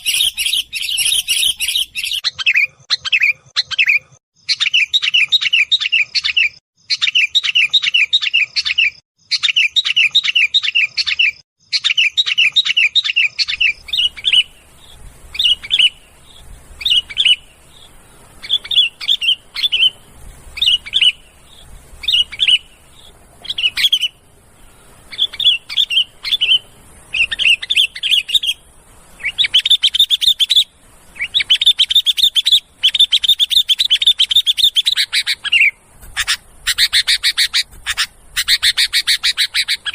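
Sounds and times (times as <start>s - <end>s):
bulbuls chattering calls: 13.5s - 39.9s.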